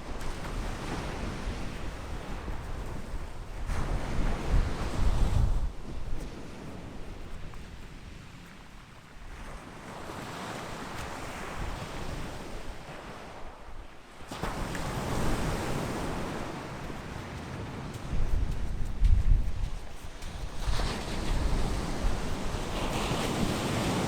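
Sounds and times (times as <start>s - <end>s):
wind buffeting microphone: 0.2s - 8.4s, 15.2s - 24.0s.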